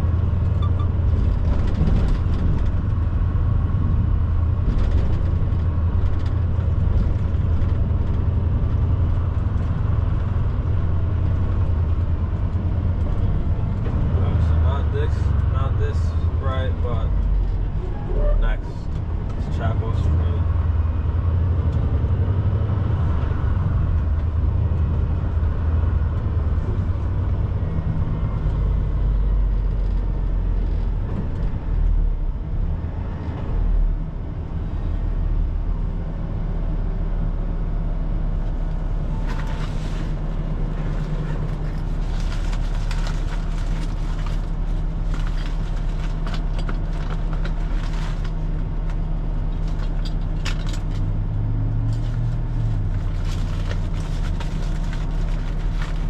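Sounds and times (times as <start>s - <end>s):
truck diesel engine running: 34.0s - 56.0s.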